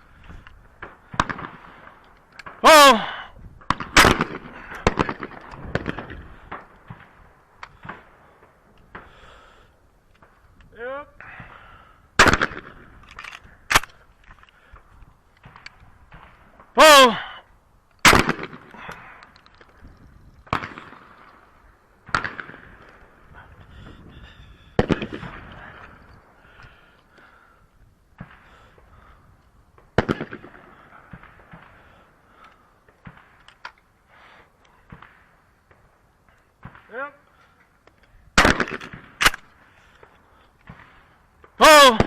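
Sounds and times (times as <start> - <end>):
shotgun firing: 3.7 - 6.2, 12.2 - 12.8, 18.0 - 18.7, 24.8 - 25.5, 38.4 - 39.5.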